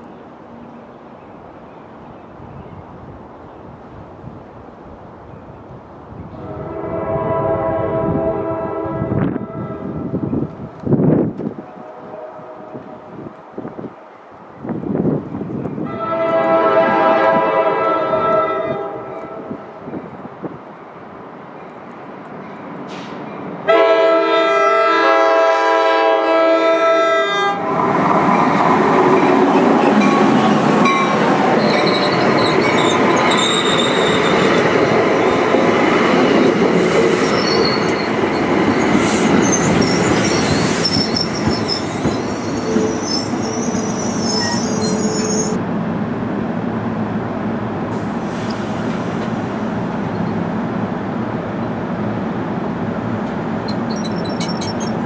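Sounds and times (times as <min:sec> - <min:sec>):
train horn chord: 0:06.4 - 0:10.0, 0:11.7 - 0:13.2, 0:15.9 - 0:19.6, 0:23.7 - 0:27.8
train wheels squealing: 0:29.8 - 0:34.6, 0:37.0 - 0:45.6, 0:53.6 - 0:55.0.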